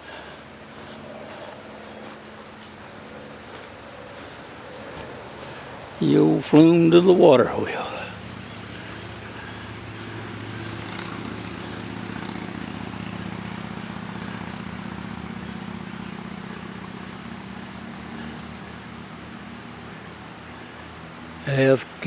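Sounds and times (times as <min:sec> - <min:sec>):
low engine drone: 0:05.4 - 0:20.8.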